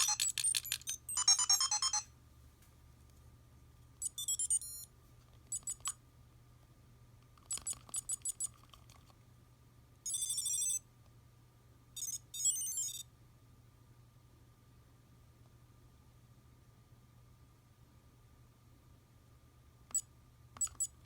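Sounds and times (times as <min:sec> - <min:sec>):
toy electronic beeps: 0:00.0 - 0:02.1, 0:04.0 - 0:04.9, 0:05.5 - 0:06.0, 0:10.1 - 0:10.8, 0:12.0 - 0:13.0, 0:20.6 - 0:21.0.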